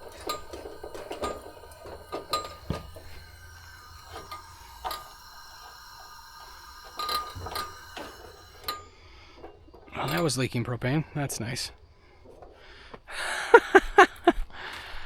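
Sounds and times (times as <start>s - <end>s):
small metal parts clicking and knocking: 0.0s - 10.7s.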